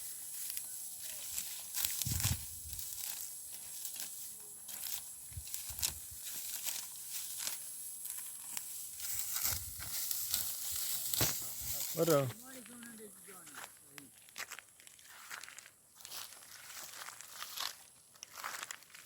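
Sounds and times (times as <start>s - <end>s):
dry stalks crackling and tearing: 0.0s - 12.9s.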